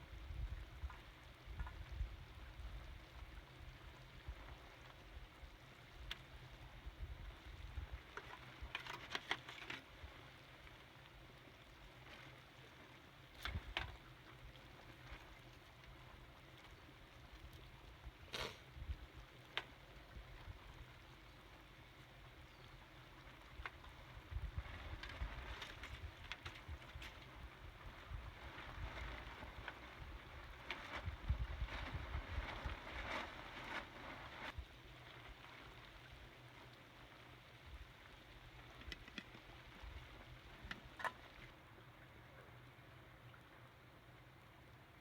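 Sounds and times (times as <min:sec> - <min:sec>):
faint hiss: 0:18.0 - 0:19.1.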